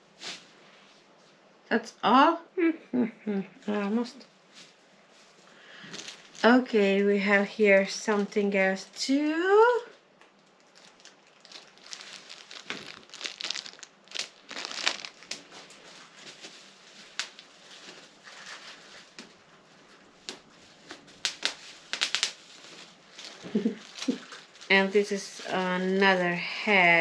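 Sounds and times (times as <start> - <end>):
packaging crinkling and rustling: 5.8 - 6.9, 10.2 - 26.8.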